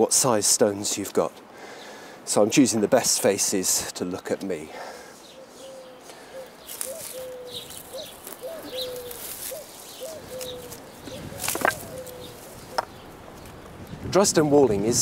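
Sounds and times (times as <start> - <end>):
small birds chirping: 4.1 - 14.1
bird calling in low voice: 5.2 - 13.0.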